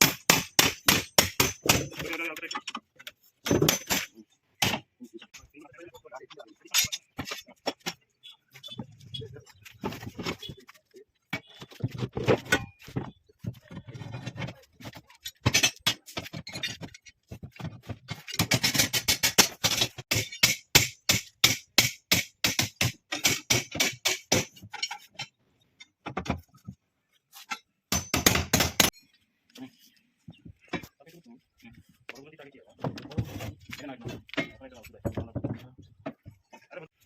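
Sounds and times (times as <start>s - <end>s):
hand tools knocking on metal: 0.0s - 4.8s, 15.3s - 25.3s.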